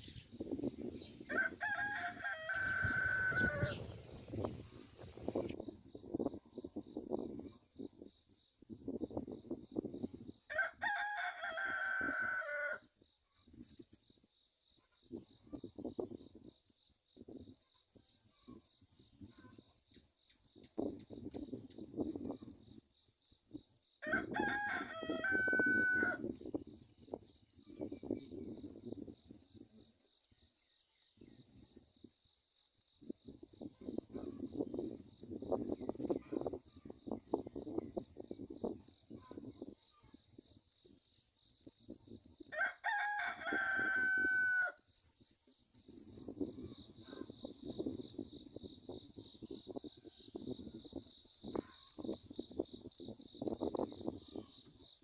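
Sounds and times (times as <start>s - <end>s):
rooster crowing: 1.3s - 3.8s, 10.5s - 12.8s, 24.0s - 26.2s, 42.5s - 44.8s
insects chirping trill: 25.0s - 42.6s, 43.4s - 55.0s.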